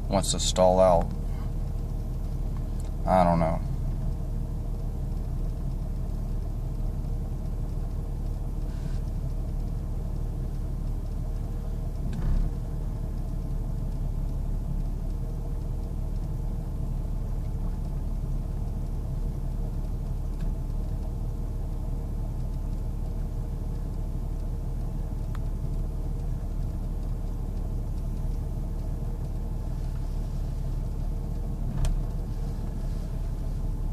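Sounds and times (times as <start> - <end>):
car engine idling roughly: 0.0 - 33.9.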